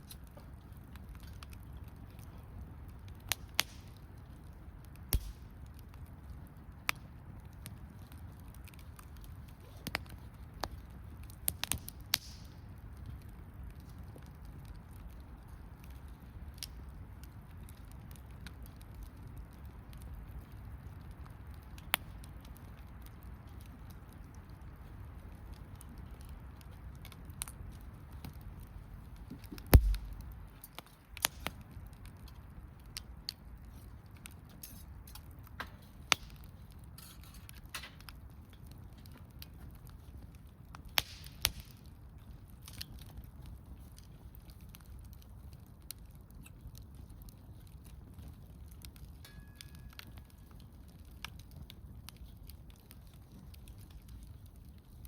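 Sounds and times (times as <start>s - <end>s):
campfire crackling and popping: 0.0s - 55.0s
low thud: 29.8s - 30.3s.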